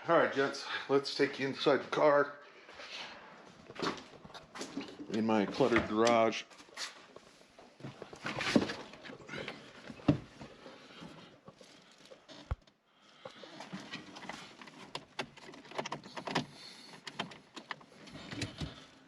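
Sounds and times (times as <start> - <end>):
clicks and knocks in a car: 13.8 - 18.9.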